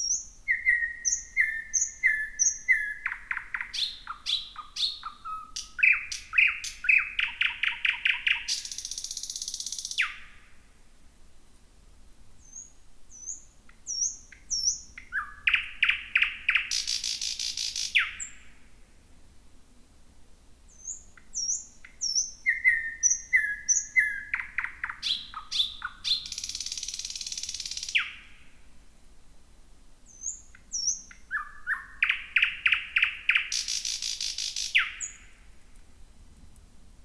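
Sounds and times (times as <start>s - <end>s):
nightingale singing: 0.0s - 10.5s, 12.4s - 18.6s, 20.7s - 28.5s, 30.0s - 35.5s.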